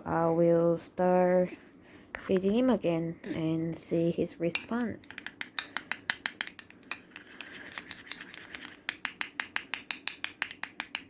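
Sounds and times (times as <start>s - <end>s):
spoon clicking against bowl: 4.6s - 11.0s.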